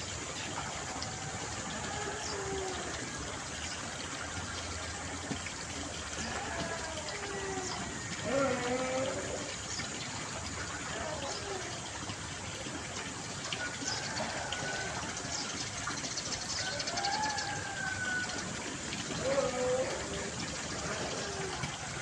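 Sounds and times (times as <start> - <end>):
water flowing: 0.0 - 22.0.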